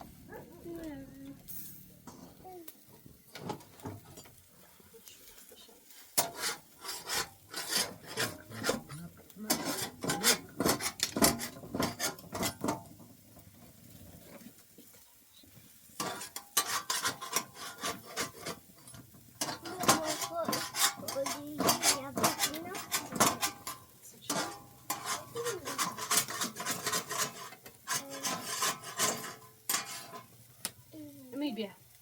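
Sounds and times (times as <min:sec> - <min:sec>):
hand scraping: 0:06.2 - 0:12.3, 0:16.1 - 0:18.7, 0:19.5 - 0:23.6, 0:24.4 - 0:30.3.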